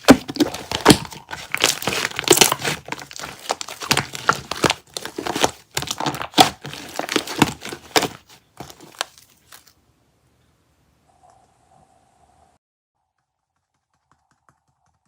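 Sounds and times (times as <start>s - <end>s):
shaving foam crackling: 0.0s - 9.7s.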